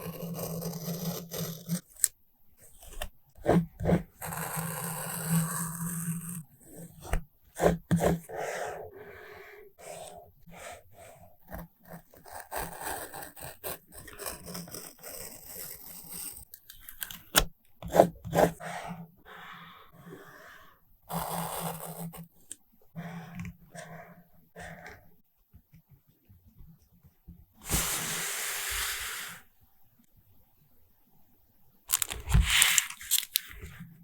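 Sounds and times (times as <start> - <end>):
paper rustling and tearing: 31.9 - 33.7.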